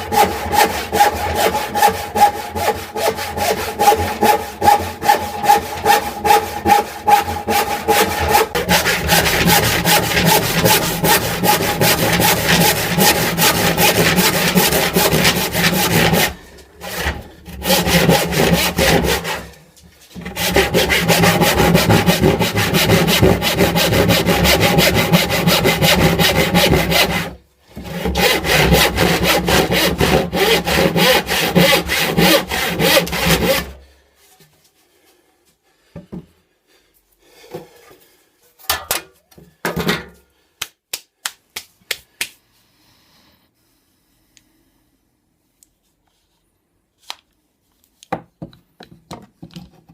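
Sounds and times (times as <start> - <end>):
saw rasping through wood: 0.0 - 19.6, 20.2 - 33.8.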